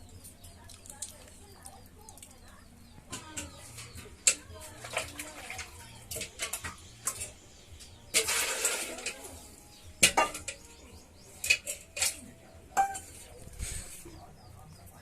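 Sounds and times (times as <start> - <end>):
dishes knocking and clinking: 3.1 - 7.4, 10.0 - 10.8, 11.4 - 13.4.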